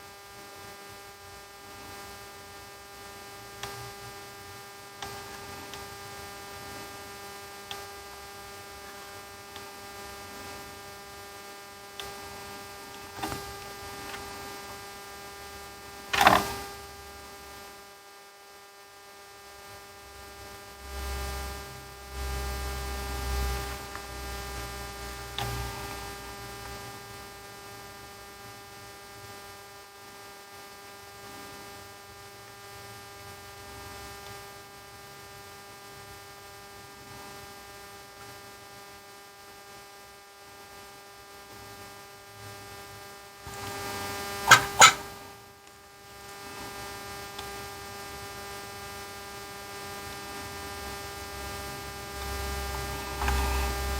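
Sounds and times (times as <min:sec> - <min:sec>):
electrical hum: 0:44.5 - 0:45.4.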